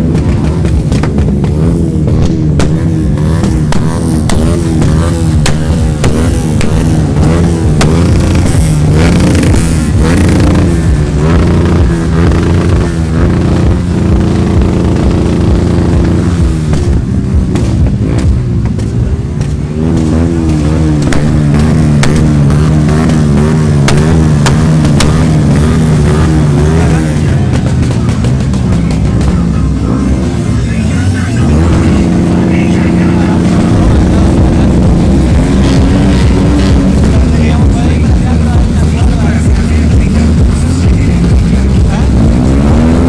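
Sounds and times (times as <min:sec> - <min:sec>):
motorcycle engines running: 0:00.0 - 0:43.0
music: 0:33.1 - 0:43.0.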